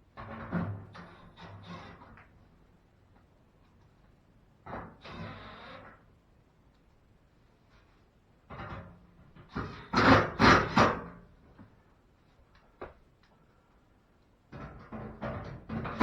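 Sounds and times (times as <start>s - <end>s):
metal panel knocking and rattling: 14.5s - 16.0s.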